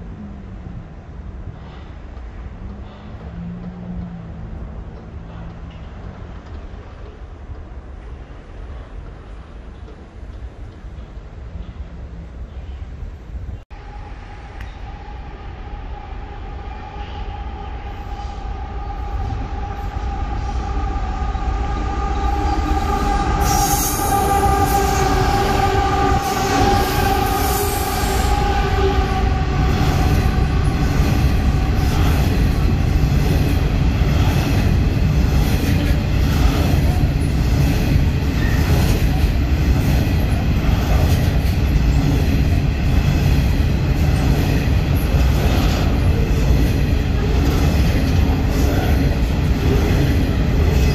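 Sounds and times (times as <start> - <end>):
freight wagons rumbling on rails: 18.3 - 50.9.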